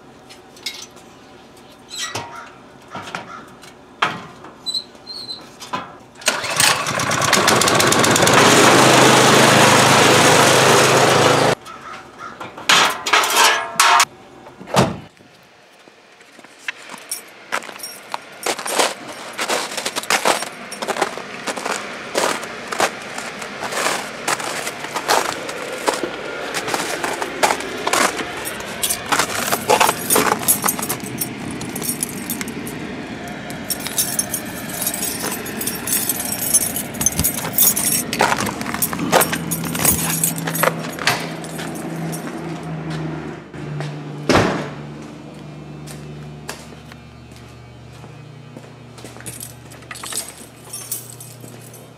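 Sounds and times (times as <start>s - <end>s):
small engine running loudly: 6.3s - 11.6s, 19.4s - 51.9s.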